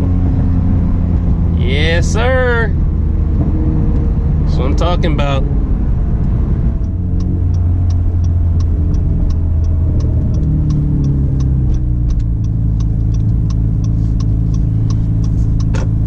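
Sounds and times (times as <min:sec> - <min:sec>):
car engine running: 0:00.0 - 0:16.0
faint regular ticks: 0:06.8 - 0:15.8.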